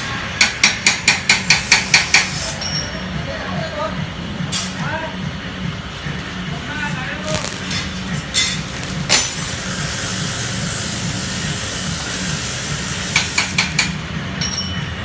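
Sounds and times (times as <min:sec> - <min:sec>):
metal-cutting machine hiss: 0:07.2 - 0:14.0.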